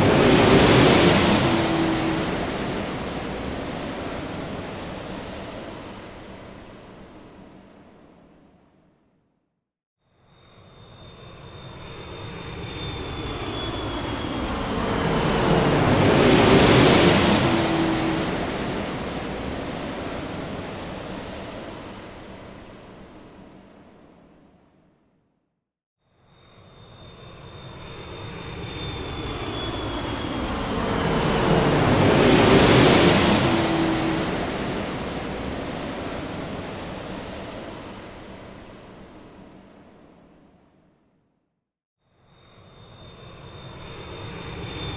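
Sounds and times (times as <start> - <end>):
airplane cabin roar: 0.0 - 5.8, 12.8 - 21.8, 28.8 - 38.1
high engine whine: 0.0 - 5.8, 27.3 - 37.9.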